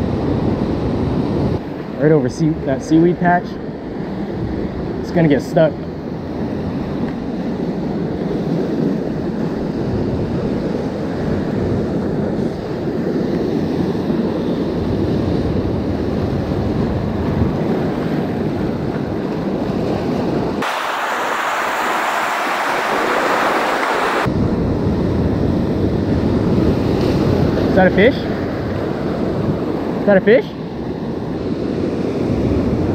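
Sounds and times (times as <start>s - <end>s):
wind buffeting the microphone: 0.0s - 32.9s
ocean surf washing against rocks: 6.2s - 24.3s
bright hissing rush: 20.6s - 24.3s.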